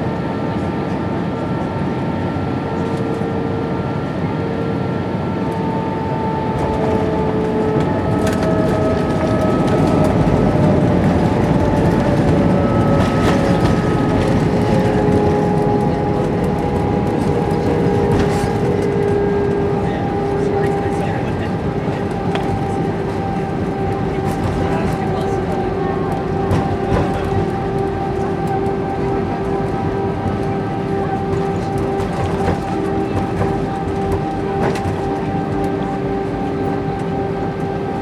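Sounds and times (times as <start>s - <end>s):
jet engines humming: 0.0s - 38.0s
wheels rumbling: 6.7s - 37.0s.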